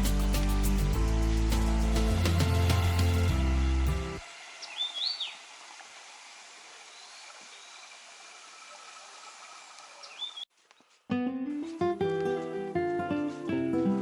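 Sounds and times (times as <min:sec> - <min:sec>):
bird calling: 0:04.6 - 0:05.4, 0:10.0 - 0:10.5.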